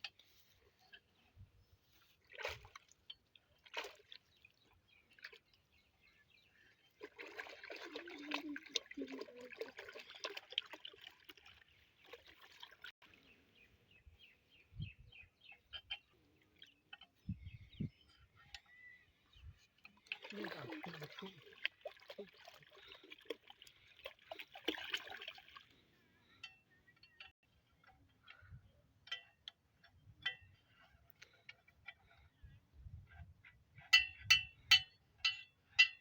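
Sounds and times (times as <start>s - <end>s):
water trickling and splashing: 0.1s - 13.5s, 19.8s - 26.0s.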